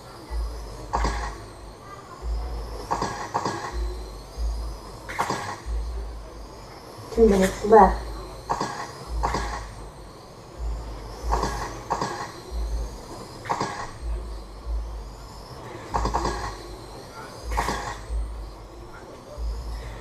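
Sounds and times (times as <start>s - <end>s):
toy truck motors whining: 0.0s - 20.0s
sharp clatters: 2.8s - 3.9s, 5.1s - 5.8s, 15.9s - 16.7s.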